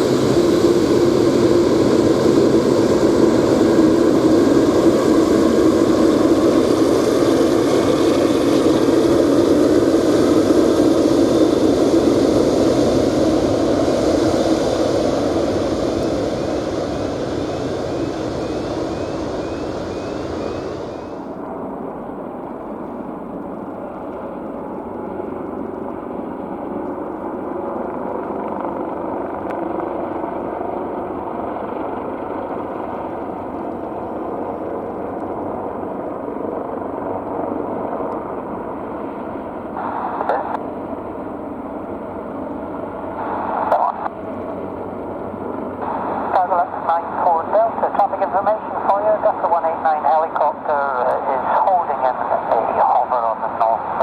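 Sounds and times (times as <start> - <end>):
jet engines roaring: 0.0 - 21.9, 32.0 - 54.0.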